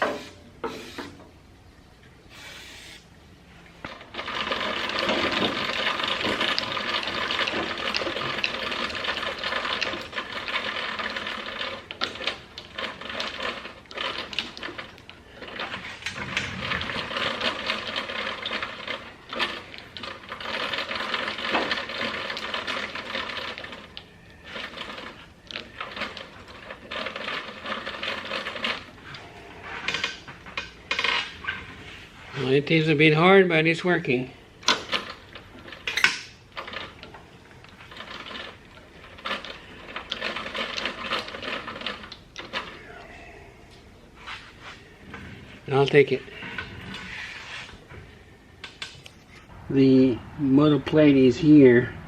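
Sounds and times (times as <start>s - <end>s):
gears grinding and clicking: 3.8s - 31.7s, 34.6s - 43.0s.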